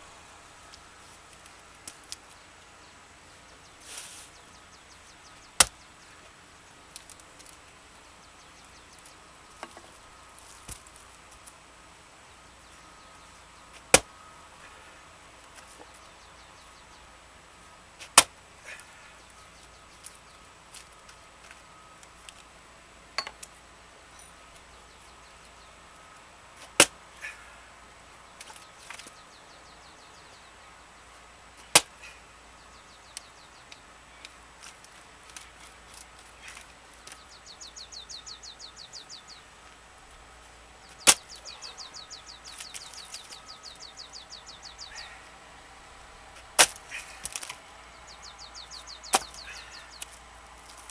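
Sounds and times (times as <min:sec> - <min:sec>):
axe chopping wood: 0:13.8 - 0:14.1, 0:18.0 - 0:18.3, 0:26.6 - 0:27.0, 0:31.7 - 0:31.9, 0:46.6 - 0:47.5, 0:49.1 - 0:49.4.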